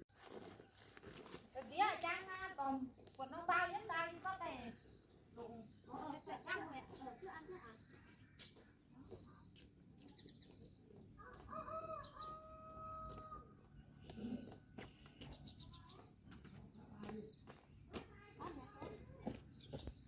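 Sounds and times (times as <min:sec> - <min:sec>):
faint rooster crowing: 0:10.9 - 0:15.4.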